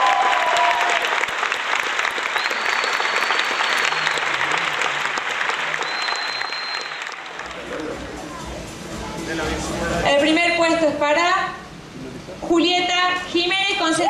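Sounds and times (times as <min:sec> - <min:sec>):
audience applauding: 0:00.0 - 0:08.1
music: 0:07.4 - 0:10.4.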